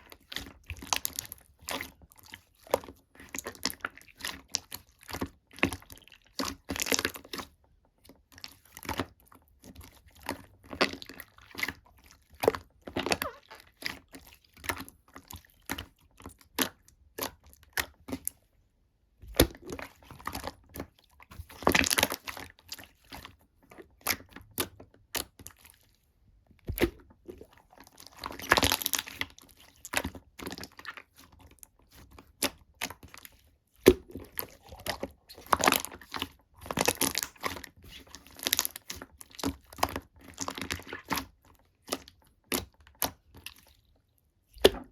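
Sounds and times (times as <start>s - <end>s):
slime crackling: 33.8s - 39.5s.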